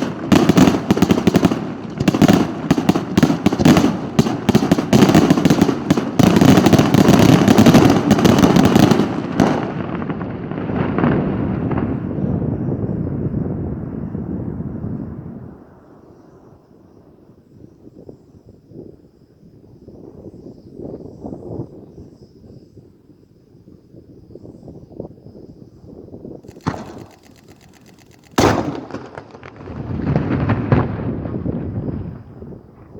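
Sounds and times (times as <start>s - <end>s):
firecracker bangs crackling: 0.0s - 12.0s, 26.4s - 32.2s.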